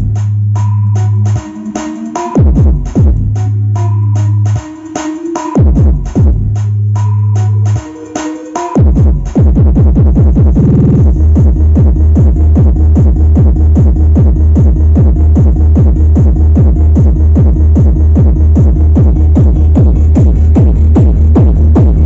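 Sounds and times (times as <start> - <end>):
electronic dance music: 0.0 - 22.0.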